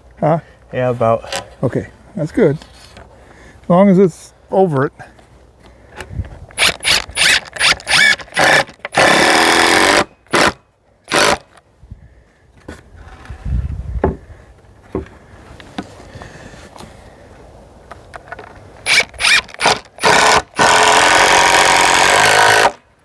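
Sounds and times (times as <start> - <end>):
cordless drill driving a screw: 6.6 - 11.4, 18.8 - 22.8.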